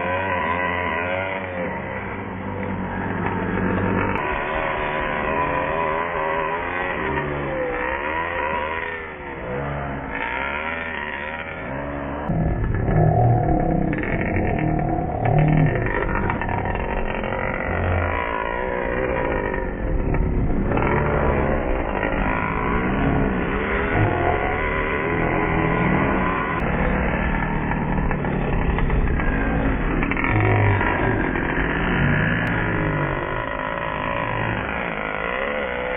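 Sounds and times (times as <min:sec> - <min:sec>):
small model engine revving: 0:00.0 - 0:35.9.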